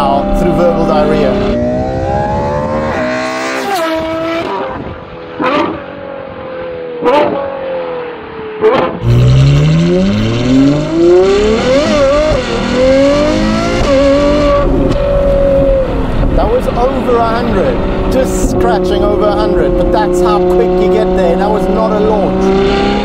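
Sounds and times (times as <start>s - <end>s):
sports car engine revving: 0.0s - 23.0s
exhaust bangs: 8.6s - 23.0s.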